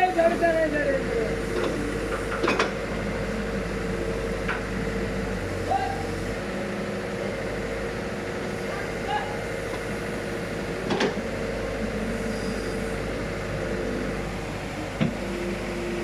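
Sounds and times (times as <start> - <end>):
construction machinery hum: 0.0 - 16.0.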